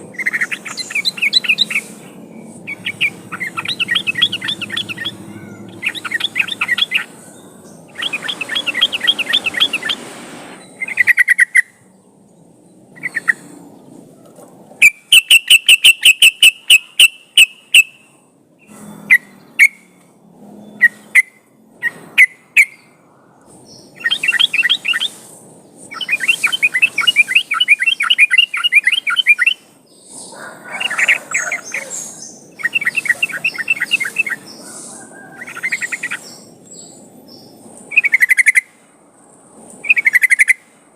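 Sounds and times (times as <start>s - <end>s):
bulbul singing: 0.0s - 13.5s, 14.8s - 20.0s, 23.6s - 38.8s.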